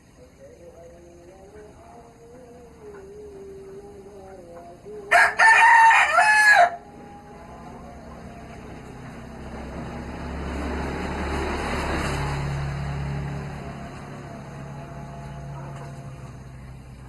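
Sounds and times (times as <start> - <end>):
motor vehicle passing: 4.8 - 17.0.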